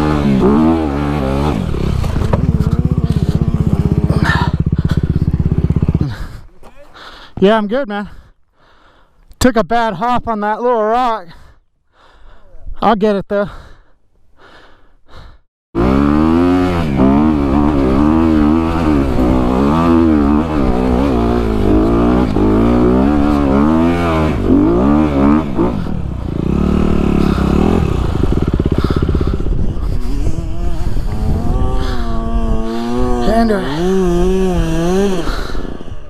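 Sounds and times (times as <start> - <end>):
dirt bike engine revving: 0.0 - 6.4, 15.8 - 36.0.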